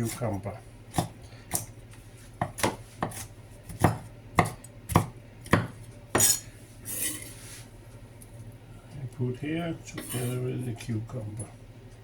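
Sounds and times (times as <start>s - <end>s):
utensil scraping: 9.9s - 10.6s.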